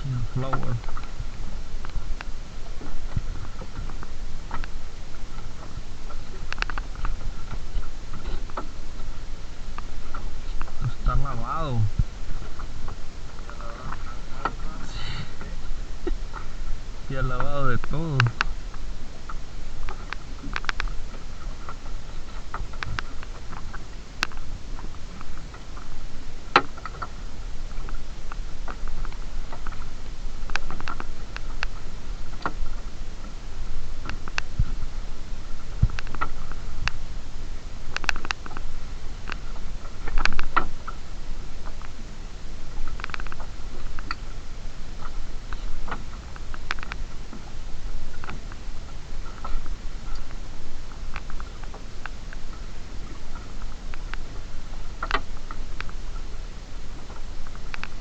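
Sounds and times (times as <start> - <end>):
fishing net hauling patter and clicks: 0.0 - 58.0
wind and sea rumble: 0.0 - 58.0
light taps and clicks: 5.4 - 8.7, 19.3 - 24.5.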